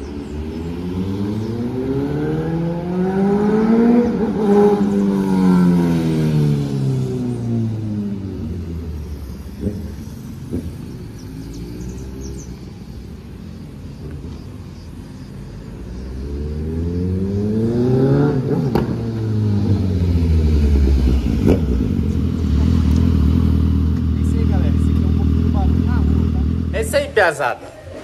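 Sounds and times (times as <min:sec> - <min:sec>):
motorcycle accelerating past: 0:00.0 - 0:12.9, 0:15.8 - 0:27.0.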